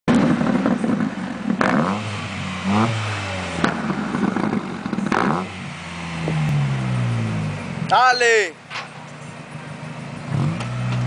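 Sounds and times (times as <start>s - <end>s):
exhaust pops: 0.1s - 5.5s
car engine revving: 0.1s - 8.0s, 9.4s - 11.0s.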